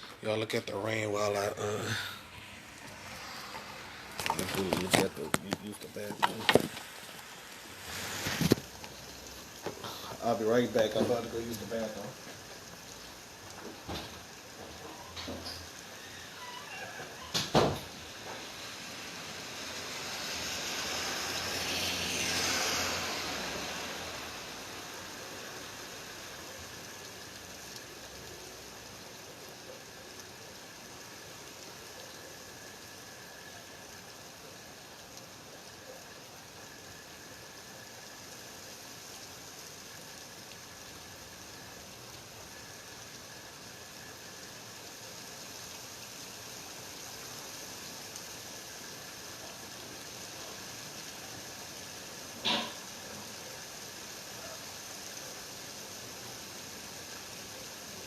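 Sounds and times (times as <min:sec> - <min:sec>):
steady rain hissing: 0:00.0 - 0:58.0
loud rushing noise: 0:00.7 - 0:08.8.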